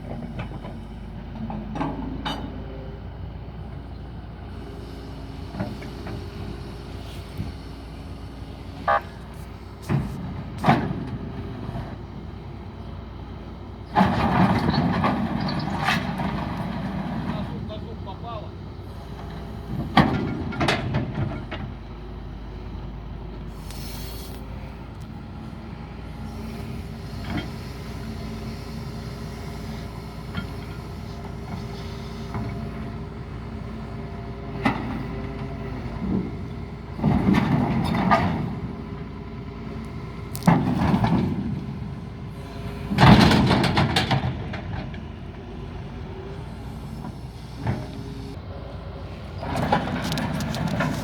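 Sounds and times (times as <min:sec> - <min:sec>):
diesel engine running: 0:00.0 - 0:51.0
metal clanking and knocks: 0:01.4 - 0:02.6, 0:19.7 - 0:21.8, 0:42.9 - 0:45.1.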